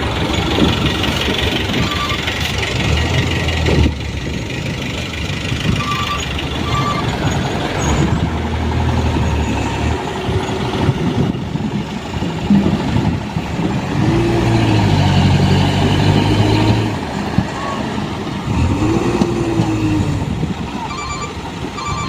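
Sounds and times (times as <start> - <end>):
diesel truck engine running: 0.0 - 22.0
short high beeps: 1.8 - 2.2, 5.8 - 7.1, 20.8 - 22.0.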